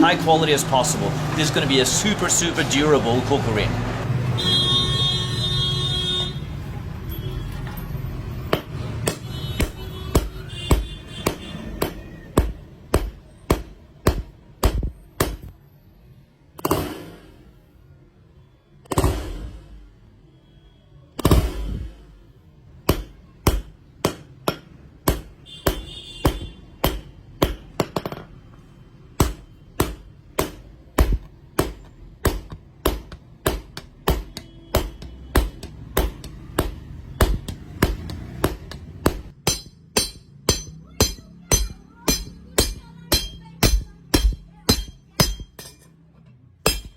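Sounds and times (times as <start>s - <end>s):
hammer striking blade on anvil: 29.2s - 45.9s, 46.7s - 46.9s
metallic ring: 39.4s - 46.0s.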